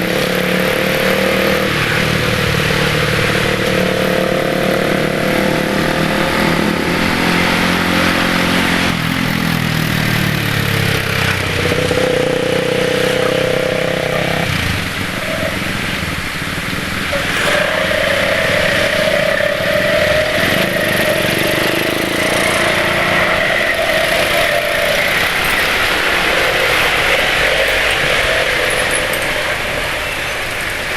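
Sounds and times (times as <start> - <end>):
motorcycle engines in traffic: 0.0 - 30.9
wind and road noise: 0.0 - 30.9
steady whine: 10.2 - 30.9.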